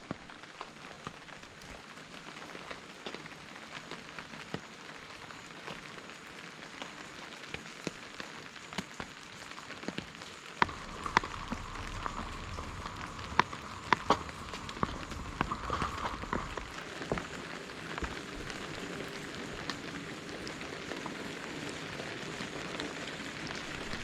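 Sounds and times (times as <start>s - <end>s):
rain falling: 0.0s - 24.0s
drops ticking on a surface: 10.6s - 17.4s.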